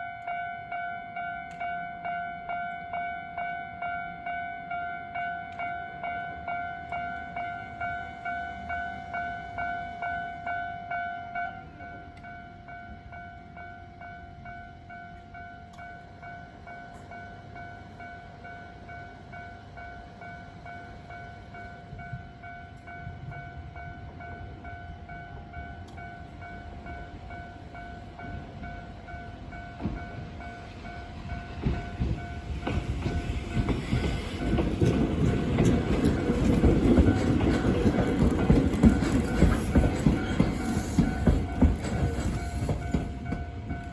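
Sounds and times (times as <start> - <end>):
electric train running: 24.2 - 43.9
wheels clacking over rail joints: 31.2 - 43.9.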